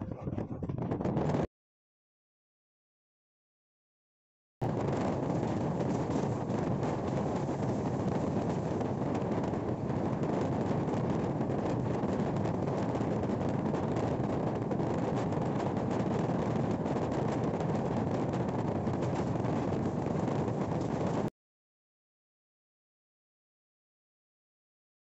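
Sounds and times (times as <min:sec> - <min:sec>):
wind rushing over microphone: 0:00.0 - 0:01.5, 0:04.6 - 0:21.3
train wheels on rails: 0:04.9 - 0:13.1.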